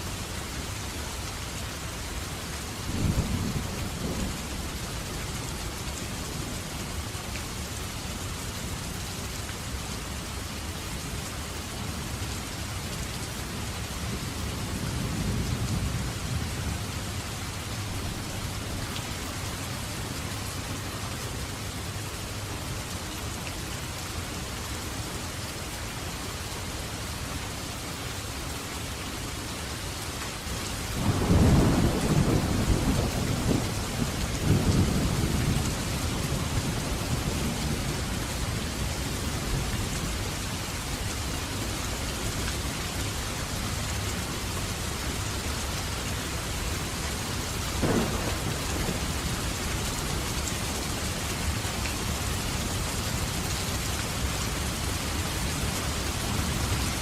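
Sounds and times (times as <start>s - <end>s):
heavy rain: 0.0s - 57.0s
rolling thunder rumble: 31.0s - 38.4s, 47.8s - 50.3s
sharp thunder clap: 47.8s - 49.3s.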